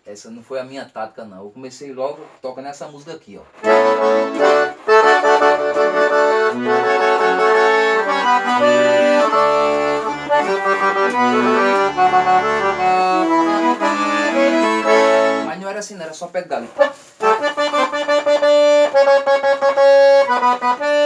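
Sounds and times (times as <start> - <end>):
accordion playing lively melody: 3.6 - 15.7, 16.6 - 21.0.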